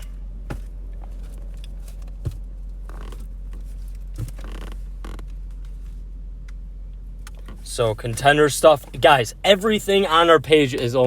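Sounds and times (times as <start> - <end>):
steady low hum: 0.0 - 11.0
soft knocks of card boxes: 0.4 - 3.3.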